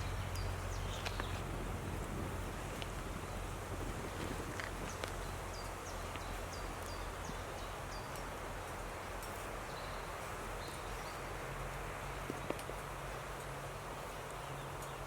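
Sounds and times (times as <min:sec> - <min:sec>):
bird chirping: 0:00.0 - 0:02.0, 0:04.8 - 0:11.4
leaves rustling in wind: 0:00.0 - 0:15.0.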